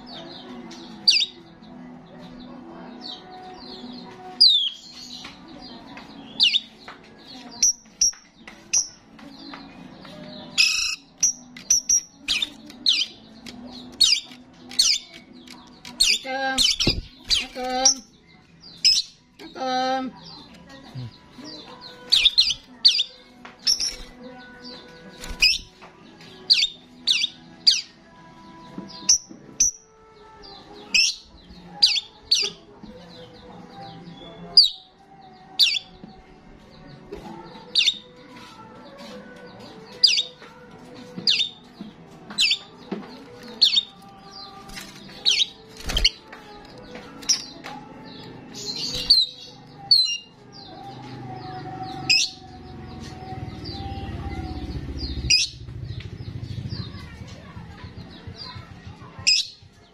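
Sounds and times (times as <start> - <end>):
starling chirping: 21.9 - 24.2, 43.4 - 46.3, 48.5 - 50.4, 52.0 - 56.7.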